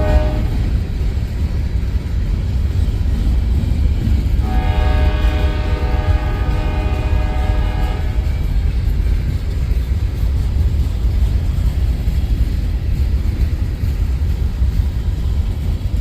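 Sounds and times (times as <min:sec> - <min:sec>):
locomotive air horn blast: 0:00.0 - 0:00.6, 0:04.4 - 0:08.3
passing train rumble: 0:00.0 - 0:16.0.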